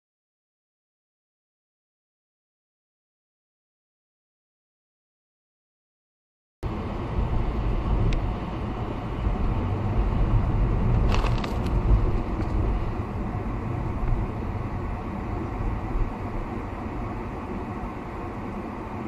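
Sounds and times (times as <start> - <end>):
vehicle road and engine rumble: 6.6 - 19.0.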